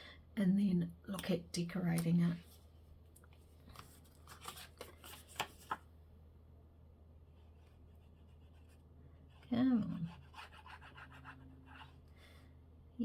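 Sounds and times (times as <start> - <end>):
faint low hum: 0.0 - 13.0
paper rustling: 3.6 - 5.9.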